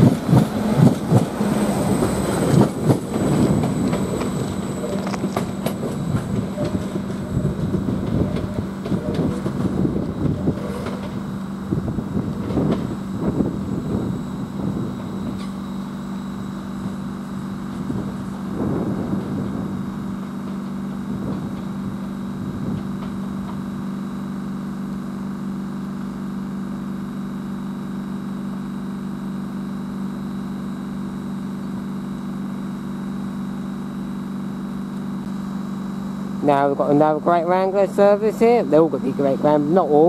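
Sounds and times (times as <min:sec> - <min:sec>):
train idling hum: 0:00.0 - 0:40.0.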